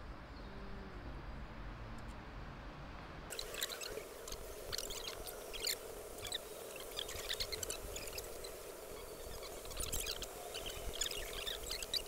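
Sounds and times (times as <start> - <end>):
faint steady hum: 0.0 - 12.0
small birds chirping: 3.3 - 12.0.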